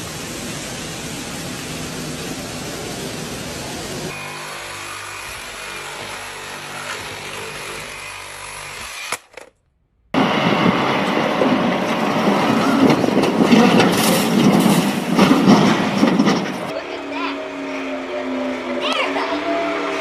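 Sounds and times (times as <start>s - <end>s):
rough vehicle noise: 10.2s - 20.0s
vehicle engine hum: 10.2s - 20.0s.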